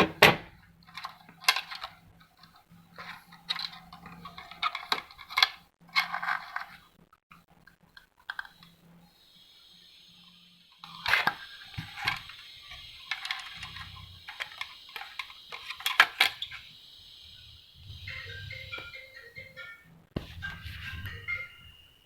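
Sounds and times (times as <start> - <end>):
printer parts clicking and rattling: 0.0 - 6.8.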